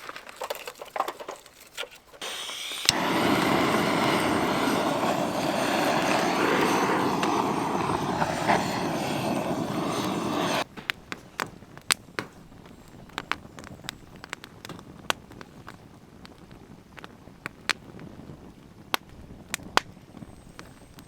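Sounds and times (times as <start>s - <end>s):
firewood crackling and popping: 0.0s - 21.0s.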